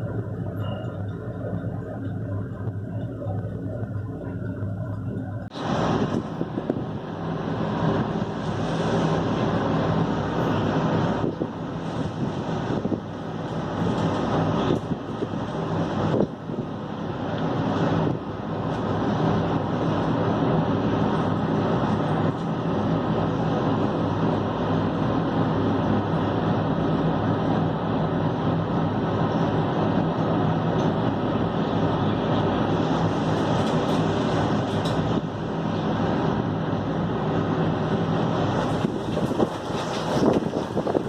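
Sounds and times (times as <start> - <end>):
steady low hum: 0.0 - 41.0
wind on microphone: 0.0 - 41.0
air conditioner rattling: 38.3 - 41.0.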